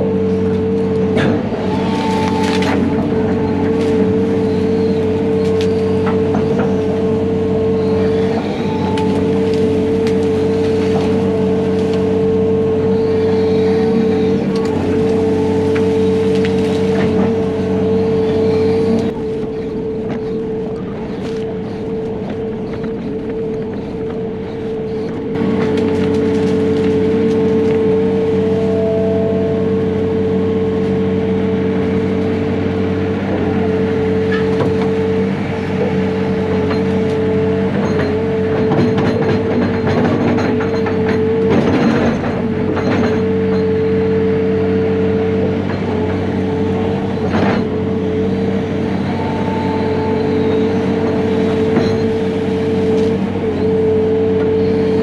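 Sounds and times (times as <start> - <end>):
diesel engine of heavy machine: 0.0 - 55.0
steady mechanical whine: 0.0 - 55.0
machine clanks and knocks: 36.4 - 43.9, 51.4 - 53.2.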